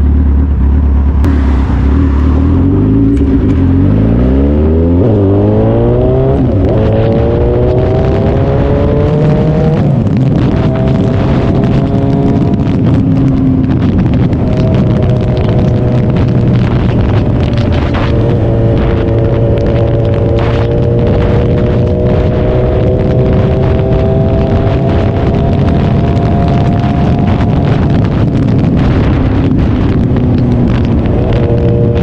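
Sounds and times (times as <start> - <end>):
motorcycle engine accelerating: 0.0 - 32.0
wind rush: 0.0 - 32.0.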